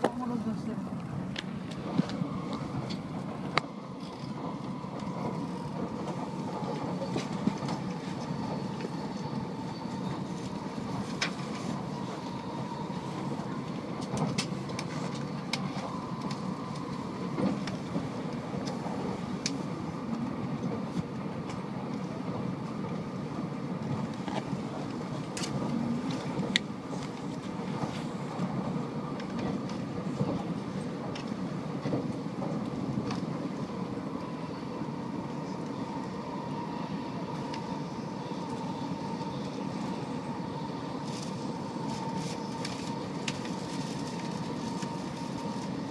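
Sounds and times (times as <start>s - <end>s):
train rumbling: 0.0s - 45.9s.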